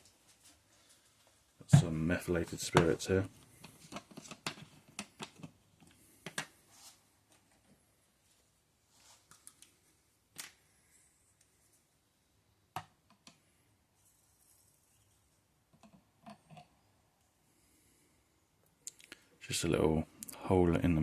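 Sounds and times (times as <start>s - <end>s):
faint clicks and taps: 2.7s - 6.5s.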